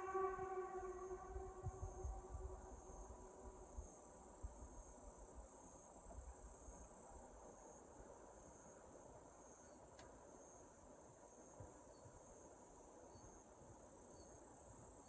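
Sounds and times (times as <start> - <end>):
train horn: 0.0 - 3.8
faint low rumble: 0.0 - 4.8
insects chirring: 0.0 - 13.5.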